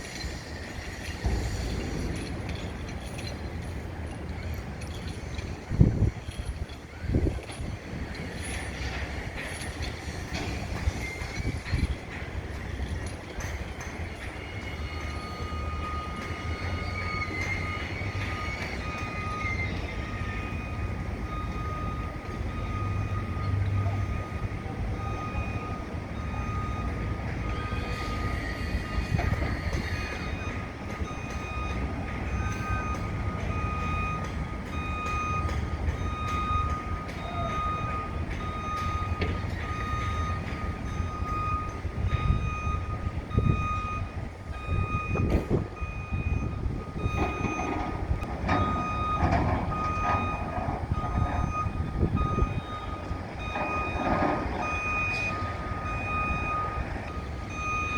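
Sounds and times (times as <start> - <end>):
heavy machinery rumble: 0.0 - 57.9
vehicle backup alarm beeping: 0.0 - 57.9.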